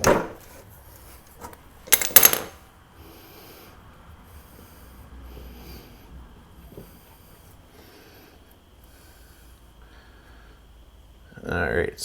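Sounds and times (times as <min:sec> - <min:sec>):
metal clinks: 0:01.9 - 0:02.6.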